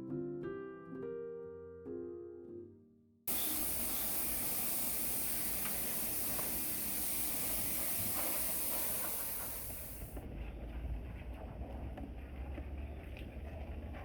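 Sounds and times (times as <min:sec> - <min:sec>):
steady high hiss: 0:03.3 - 0:10.2.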